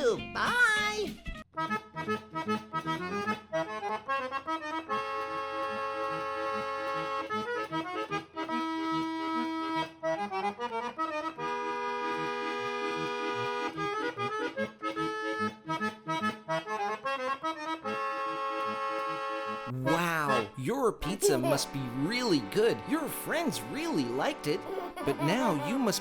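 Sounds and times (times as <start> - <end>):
accordion chords: 1.6 - 26.0
bouncy bass line: 19.7 - 26.0.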